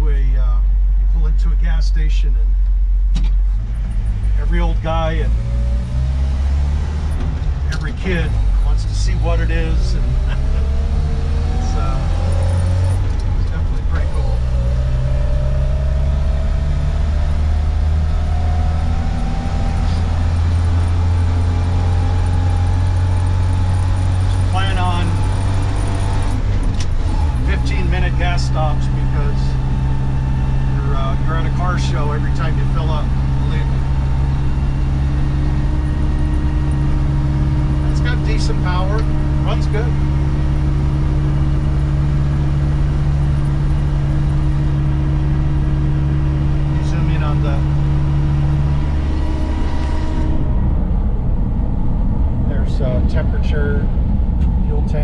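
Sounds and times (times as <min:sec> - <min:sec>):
drivetrain whine rising: 0:00.0 - 0:55.0
engine drone: 0:00.0 - 0:55.0
road and wind noise: 0:00.0 - 0:55.0.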